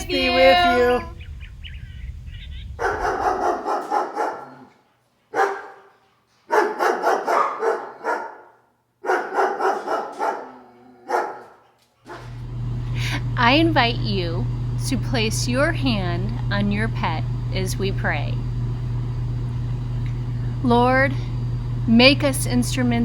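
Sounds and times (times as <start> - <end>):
dog barking: 2.8 - 12.4.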